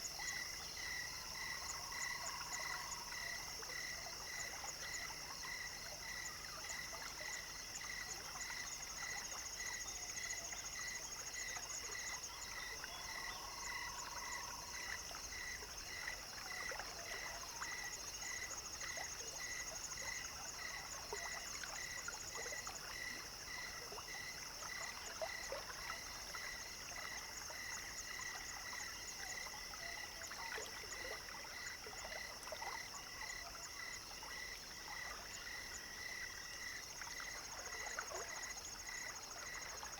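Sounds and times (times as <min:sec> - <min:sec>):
frog call: 0:12.1 - 0:15.0.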